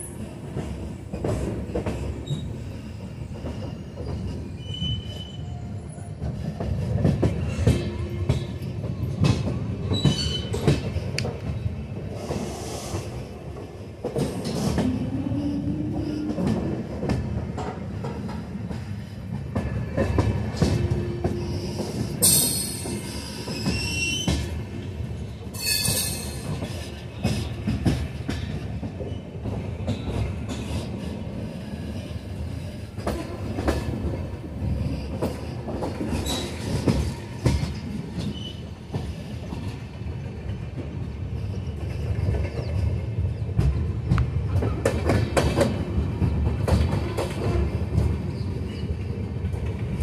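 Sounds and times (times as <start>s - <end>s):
train coaches rumbling on rails: 0.0s - 50.0s
metallic wheel squeals: 4.6s - 5.6s.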